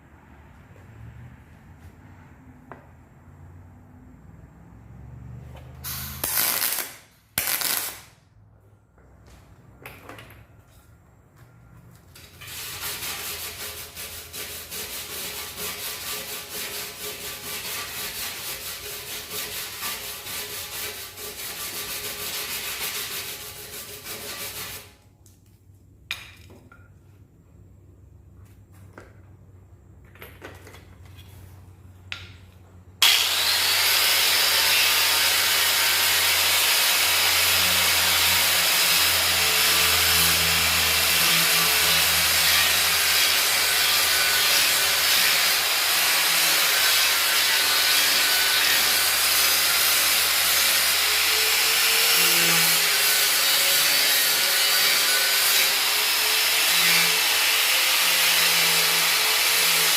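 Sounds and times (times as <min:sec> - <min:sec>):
tool grinding metal: 0:12.4 - 0:24.9, 0:33.0 - 0:59.9.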